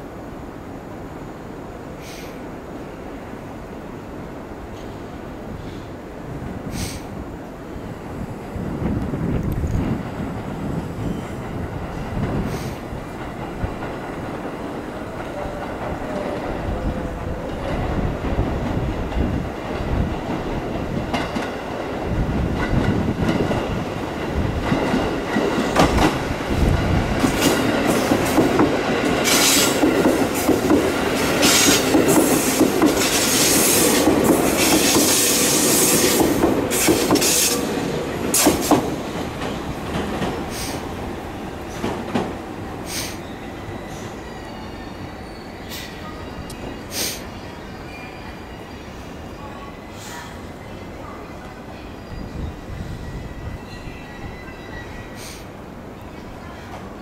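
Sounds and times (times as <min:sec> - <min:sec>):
train wheels clacking over rail joints: 0:26.8 - 0:37.7, 0:38.3 - 0:40.9.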